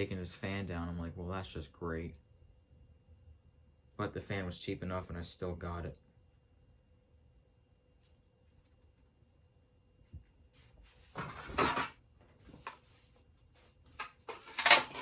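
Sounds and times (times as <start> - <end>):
wooden blades scraping and clattering: 10.9 - 11.9, 14.0 - 15.0.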